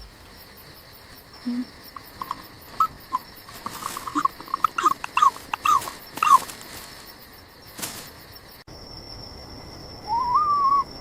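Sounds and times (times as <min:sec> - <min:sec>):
wavering whistle-like call: 0:10.1 - 0:11.0.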